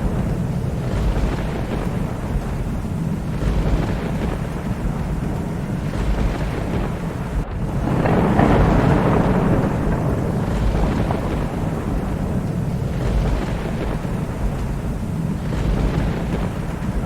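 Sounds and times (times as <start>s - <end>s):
distant thunder rumbling: 0.0s - 17.0s
steady rain: 0.0s - 17.0s.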